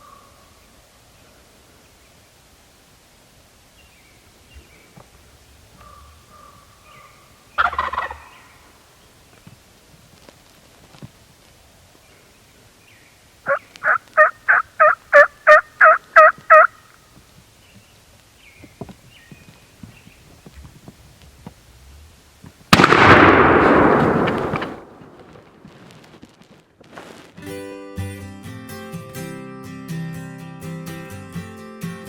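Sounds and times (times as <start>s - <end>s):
turkey yelps: 5.8s - 8.6s, 13.5s - 16.8s
shotgun blast: 22.7s - 25.6s.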